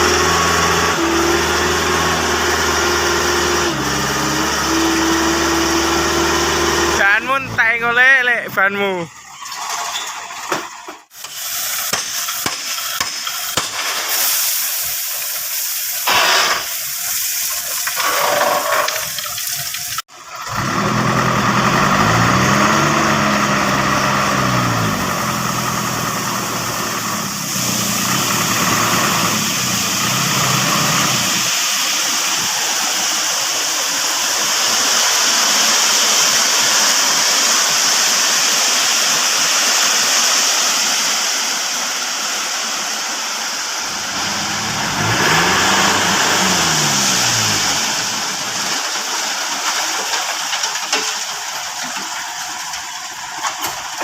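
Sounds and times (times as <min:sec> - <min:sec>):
truck engine revving: 0:00.0 - 0:08.0, 0:20.4 - 0:33.1, 0:43.7 - 0:49.8.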